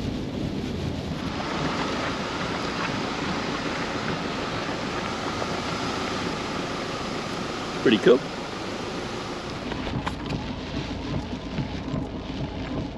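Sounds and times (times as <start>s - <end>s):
road and rain noise inside car: 0.0s - 12.9s.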